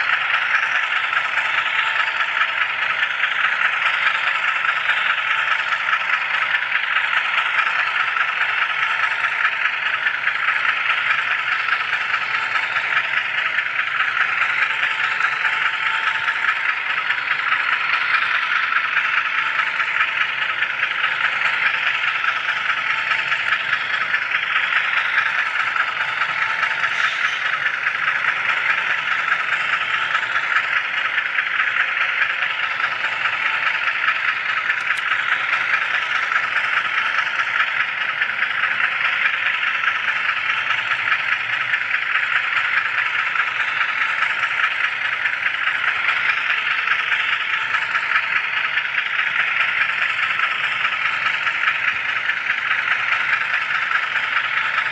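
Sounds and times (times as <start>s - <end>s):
model train wheels rattling on rail: 0.0s - 54.9s.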